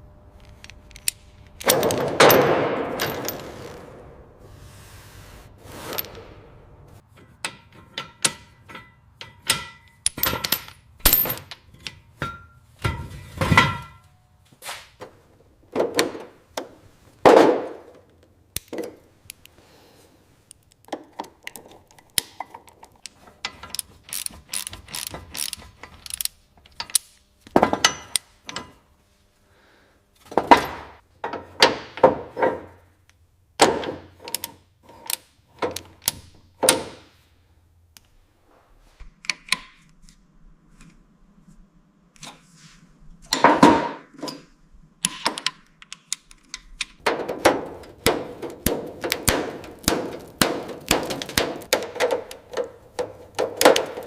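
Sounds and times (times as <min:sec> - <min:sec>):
hand tools clicking and rattling: 0:20.6 - 0:27.2, 0:45.2 - 0:54.0.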